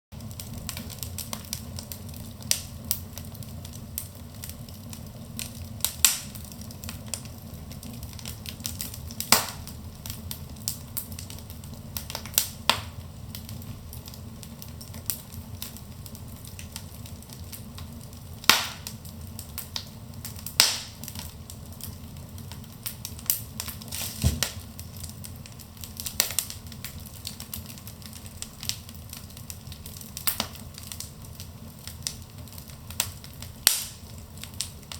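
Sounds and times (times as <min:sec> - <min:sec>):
fire flames rumbling: 0:00.1 - 0:34.9
logs crackling and popping: 0:00.2 - 0:34.9.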